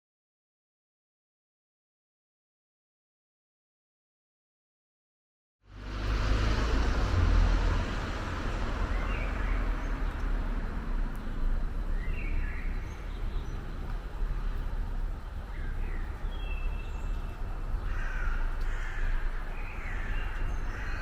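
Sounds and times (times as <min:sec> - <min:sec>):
traffic rumble and hum: 0:05.6 - 0:21.0.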